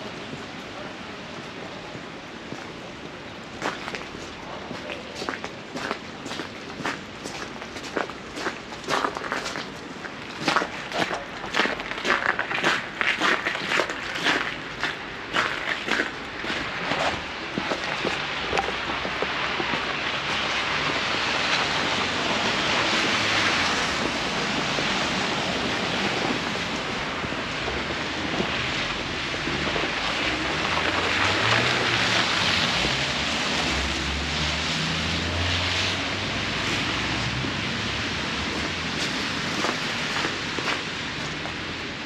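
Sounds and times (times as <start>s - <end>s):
wind gusting over microphone: 16.6s - 42.0s.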